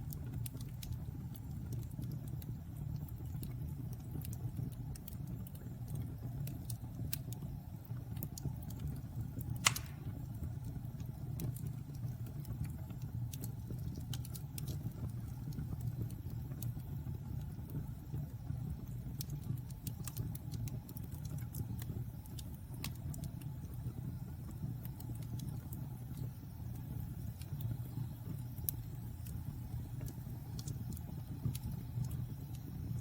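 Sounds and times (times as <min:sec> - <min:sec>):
low rumble of fire: 0:00.0 - 0:33.0
wood fire crackling: 0:00.0 - 0:33.0
loud fire pop: 0:09.6 - 0:10.3.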